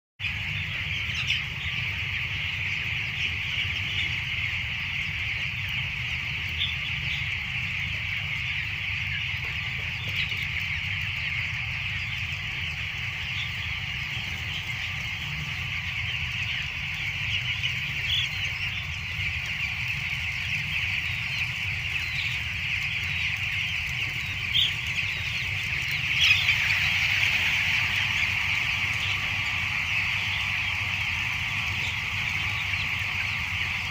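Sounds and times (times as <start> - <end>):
chickens cheeping and clucking: 0.2 - 33.9
steady low hum: 0.2 - 33.9.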